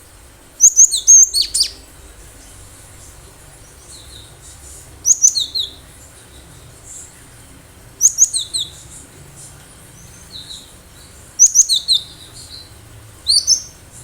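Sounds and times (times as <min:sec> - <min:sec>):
bird singing high sharp notes: 0:00.6 - 0:01.8, 0:05.0 - 0:05.8, 0:08.0 - 0:08.9, 0:10.0 - 0:13.8.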